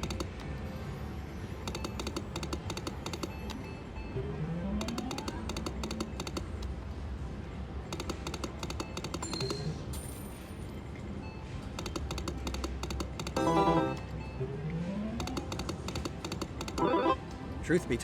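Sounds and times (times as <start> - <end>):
slot machine reels clicking: 0.0 - 0.5, 1.7 - 3.6, 4.8 - 6.7, 8.0 - 9.6, 11.8 - 14.2, 15.2 - 17.2
low casino hum: 13.0 - 18.0
short electronic tones: 13.4 - 14.1, 16.8 - 17.2.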